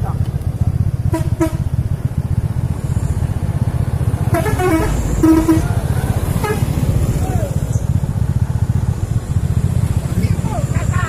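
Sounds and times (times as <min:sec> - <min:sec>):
heavy trucks rumbling: 0:00.0 - 0:11.0
truck horn blasts: 0:01.0 - 0:01.9, 0:04.2 - 0:06.8.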